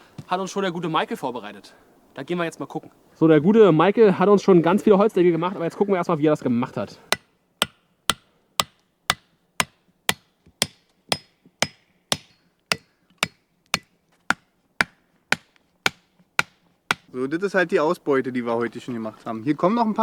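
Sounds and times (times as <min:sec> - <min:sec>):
hammer blows on wood: 0:07.1 - 0:17.1.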